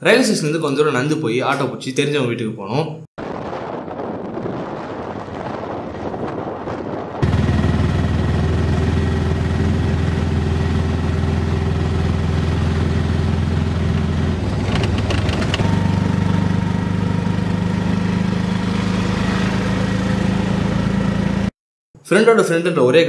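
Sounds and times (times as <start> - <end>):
auto rickshaw engine running: 7.2 - 21.5.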